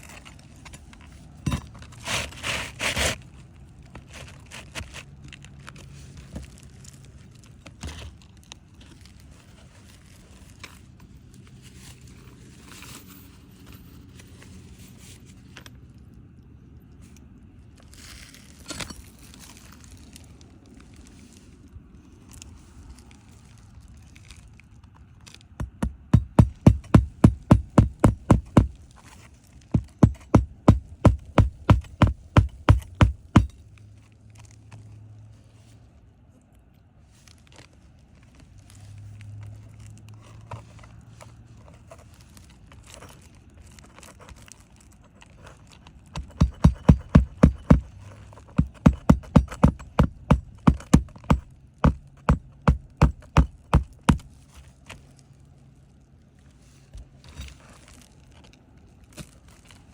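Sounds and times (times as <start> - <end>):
scraping and handling: 0.0 - 15.7, 25.4 - 34.6, 37.2 - 55.4, 56.4 - 59.9
hard rapid hammering knocks: 25.6 - 28.8, 29.8 - 33.5, 46.2 - 54.3.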